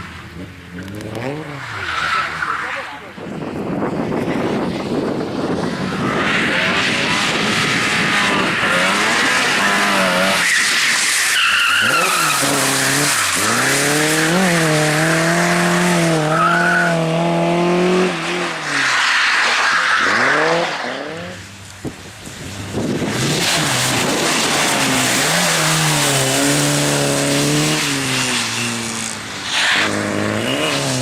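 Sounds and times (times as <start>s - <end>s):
car engine revving hard: 5.8s - 11.0s, 11.7s - 18.8s, 22.6s - 31.0s
tyres squealing: 8.3s - 14.6s
hiss of sliding tyres: 18.1s - 31.0s.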